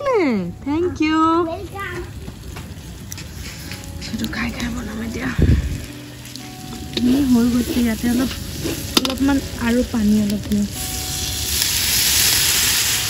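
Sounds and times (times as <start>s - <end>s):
food sizzling in hot oil: 1.4s - 13.0s
spatula stirring: 6.2s - 10.3s.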